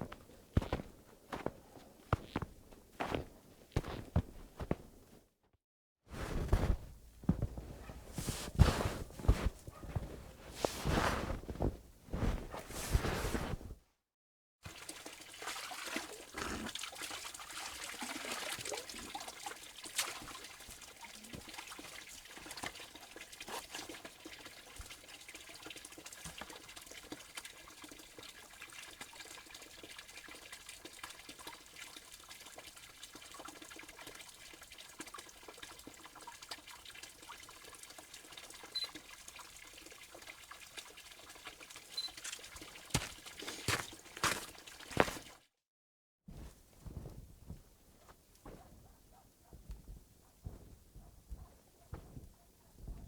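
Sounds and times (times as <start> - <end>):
water trickling: 14.7 - 45.4.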